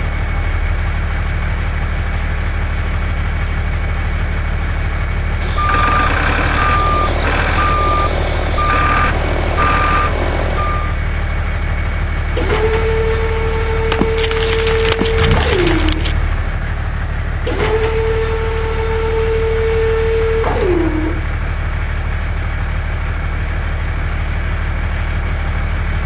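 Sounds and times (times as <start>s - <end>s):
truck engine running: 0.0s - 26.0s
reversing alarm beeping: 5.4s - 11.1s, 12.4s - 15.9s, 17.5s - 21.2s.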